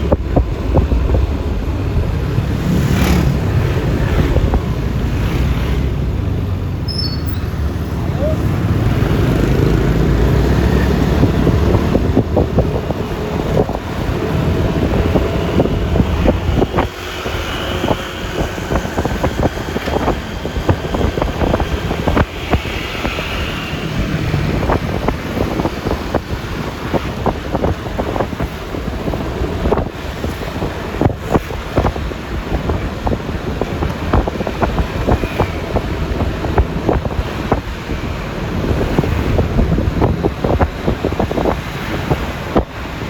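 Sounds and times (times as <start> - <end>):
heavy rumble: 0.0 - 6.8, 7.5 - 43.0
wind buffeting microphone: 0.0 - 6.8, 7.7 - 43.0.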